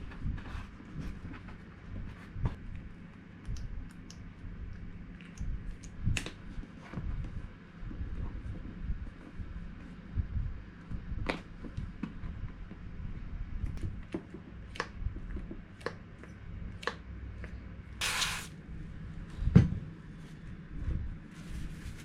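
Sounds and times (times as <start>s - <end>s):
aerosol spray can hiss: 18.0s - 18.5s.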